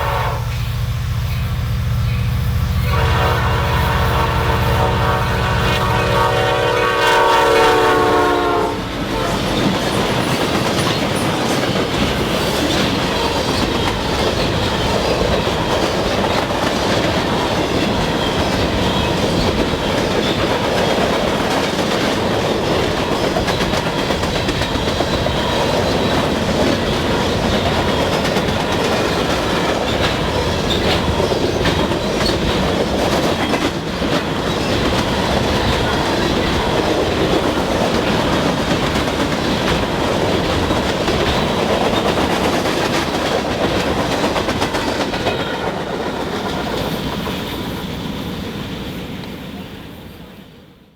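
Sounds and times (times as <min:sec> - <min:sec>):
freight train rumbling: 0:00.0 - 0:50.9
wheels clicking over rail joints: 0:08.5 - 0:47.5.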